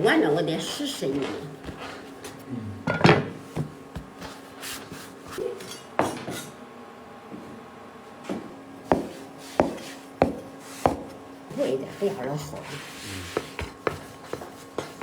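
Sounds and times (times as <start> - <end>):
utensils and dishes clinking: 5.4 - 6.6.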